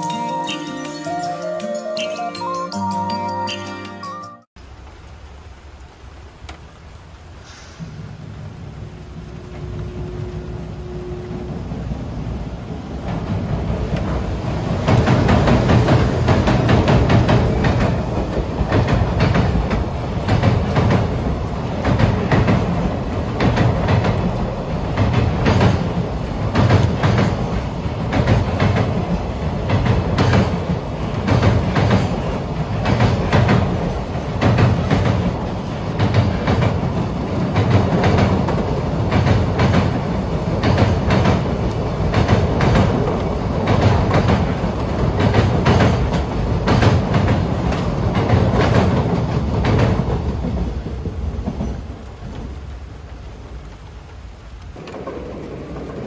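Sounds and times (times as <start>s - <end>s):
rain: 0.0s - 3.0s, 4.6s - 56.0s
train rumble: 4.9s - 56.0s
train wheels clattering over rail joints: 13.0s - 52.5s, 54.8s - 56.0s.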